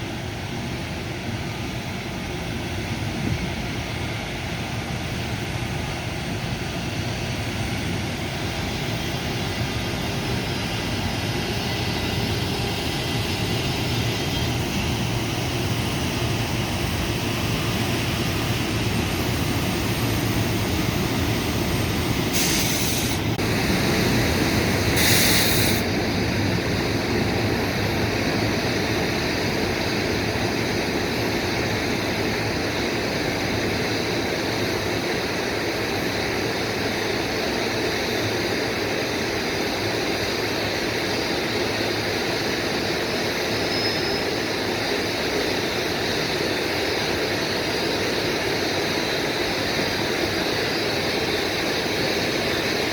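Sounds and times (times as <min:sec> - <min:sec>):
high hiss bursts: 0:22.2 - 0:23.5, 0:24.8 - 0:25.9.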